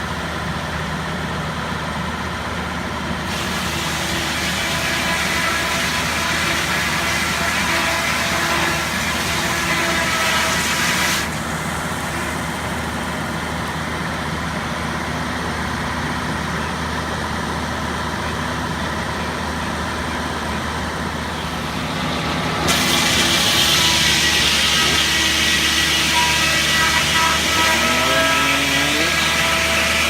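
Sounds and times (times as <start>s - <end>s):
sawmill engine running: 0.0s - 30.0s
saw blade hissing through wood: 3.3s - 12.4s, 21.4s - 30.0s.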